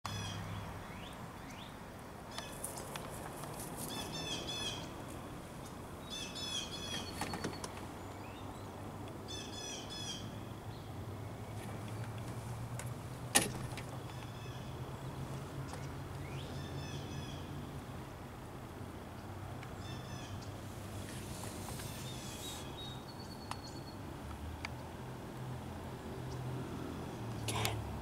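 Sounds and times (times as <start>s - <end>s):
songbird chirping: 0.1s - 17.7s, 19.1s - 24.1s.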